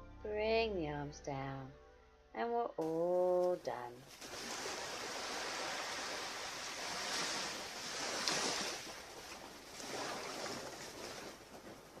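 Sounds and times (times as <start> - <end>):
sea waves washing onto beach: 4.0 - 12.0.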